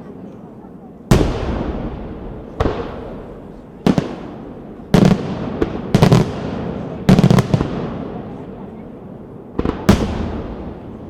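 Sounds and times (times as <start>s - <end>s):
fireworks exploding: 1.0s - 11.0s.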